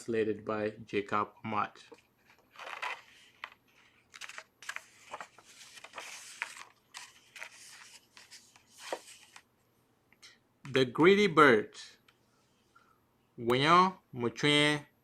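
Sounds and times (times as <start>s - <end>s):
book pages rustling: 1.9s - 9.5s.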